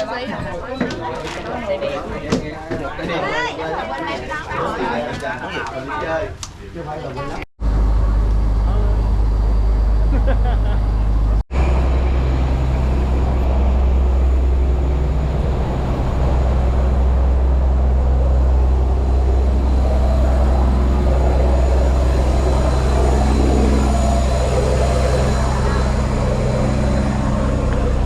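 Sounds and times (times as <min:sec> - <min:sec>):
boat engine droning: 0:07.6 - 0:28.0.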